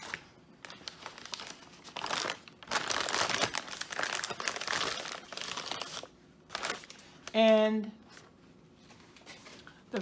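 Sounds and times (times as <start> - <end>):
food packaging crinkling: 0.0 - 7.4.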